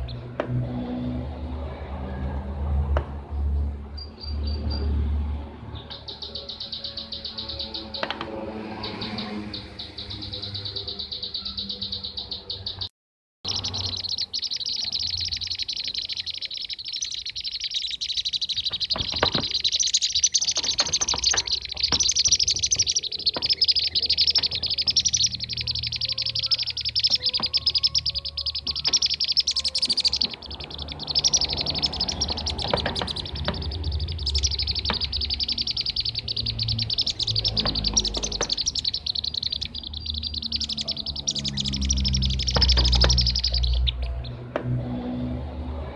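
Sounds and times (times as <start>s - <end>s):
bee-eaters chirping trills: 0.0s - 0.3s, 5.7s - 12.9s, 13.5s - 44.5s.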